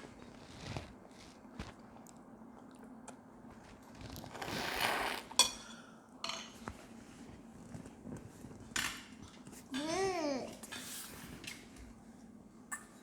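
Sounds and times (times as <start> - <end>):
quiet chewing: 0.1 - 4.3.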